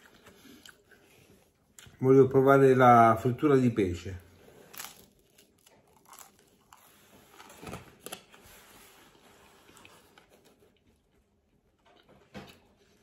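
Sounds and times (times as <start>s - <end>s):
faint chewing: 0.0s - 2.0s, 9.4s - 13.0s.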